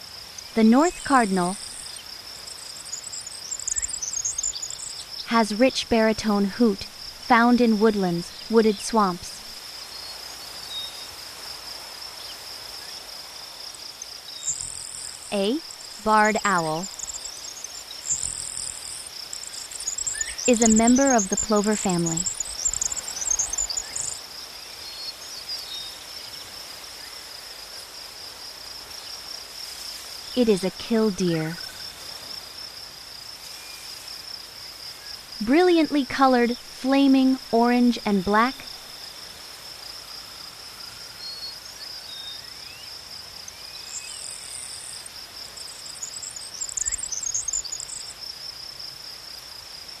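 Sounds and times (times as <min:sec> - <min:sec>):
high-pitched insect trill: 0:00.0 - 0:50.0
scratchy bird chatter: 0:16.2 - 0:24.2
faint hiss: 0:22.2 - 0:50.0.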